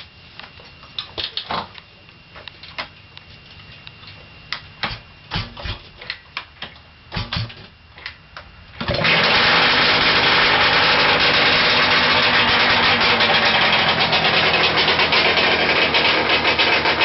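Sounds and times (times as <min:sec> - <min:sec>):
two-stroke engine running: 0:08.8 - 0:17.0.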